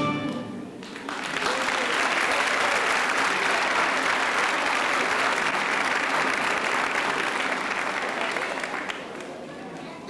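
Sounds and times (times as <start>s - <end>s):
audience applauding: 0.8s - 9.9s.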